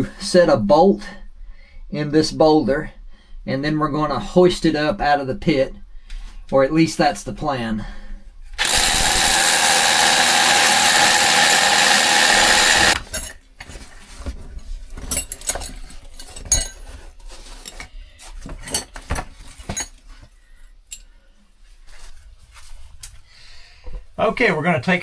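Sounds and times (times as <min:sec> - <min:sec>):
power drill boring into rock: 0:08.6 - 0:13.0.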